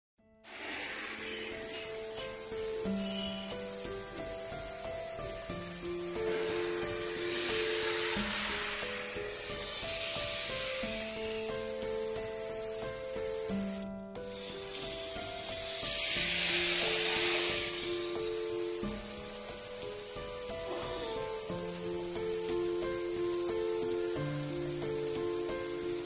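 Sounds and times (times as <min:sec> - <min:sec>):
rain hiss: 0:00.5 - 0:26.0
ambient music pad: 0:00.8 - 0:04.2.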